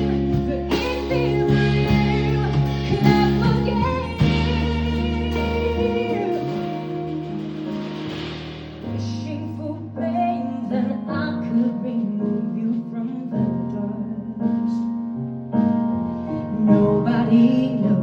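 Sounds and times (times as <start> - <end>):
band playing slow ballad: 0.0 - 10.4
keyboard chords: 0.0 - 18.0.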